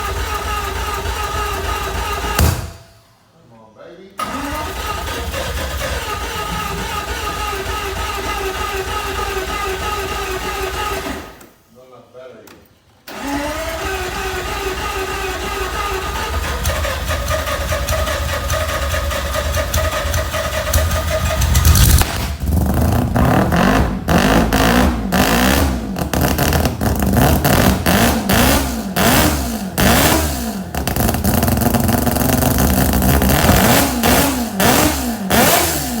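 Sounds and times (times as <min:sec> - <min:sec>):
exhaust cracks: 0:00.0 - 0:03.0, 0:15.2 - 0:36.0
rotary engine revving: 0:13.1 - 0:36.0.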